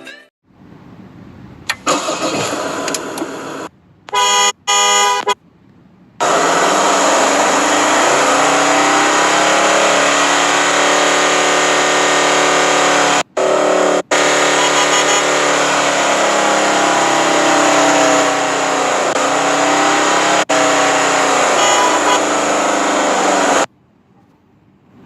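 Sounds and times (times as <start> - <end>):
car horn honks: 4.1 - 5.4, 14.1 - 15.4, 19.2 - 22.4
car engine revving: 6.2 - 23.7.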